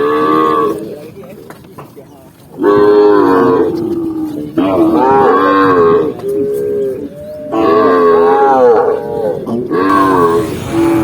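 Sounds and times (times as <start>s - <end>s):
cattle mooing: 2.6s - 11.0s.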